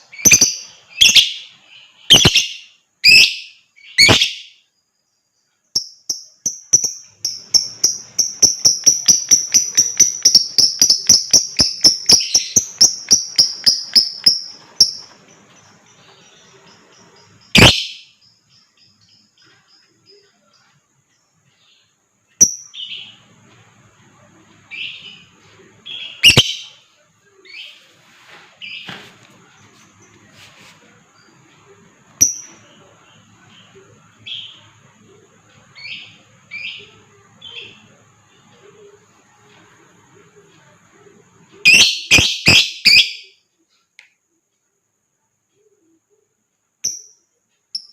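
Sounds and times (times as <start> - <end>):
lovebird chirping: 0.0 - 39.4, 40.1 - 43.9, 45.5 - 47.9
lovebird sharp calls: 2.1 - 4.5, 17.4 - 18.1, 25.9 - 26.8, 41.7 - 43.3.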